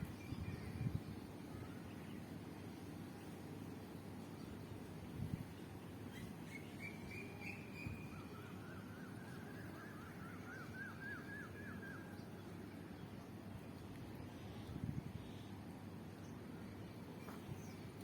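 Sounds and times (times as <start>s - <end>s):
bird singing: 6.1s - 13.2s.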